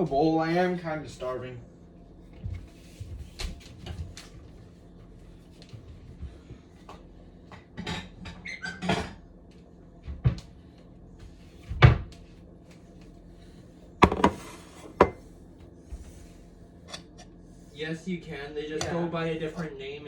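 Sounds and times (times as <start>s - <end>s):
dishes clicking and knocking: 14.0s - 15.2s.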